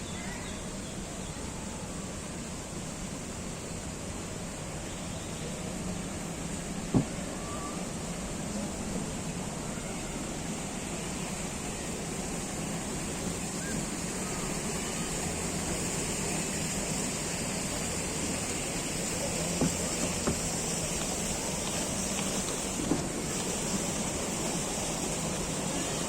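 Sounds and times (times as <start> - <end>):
distant road traffic: 0.0 - 26.0
steady high hiss: 0.0 - 26.0
soft knocks: 6.9 - 7.2, 19.6 - 20.5.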